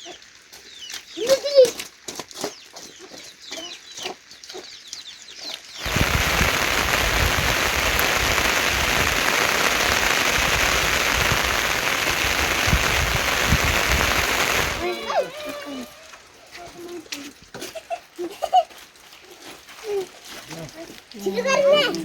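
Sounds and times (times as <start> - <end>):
chickens clucking: 2.4 - 4.8
heavy rain downpour: 5.8 - 16.9.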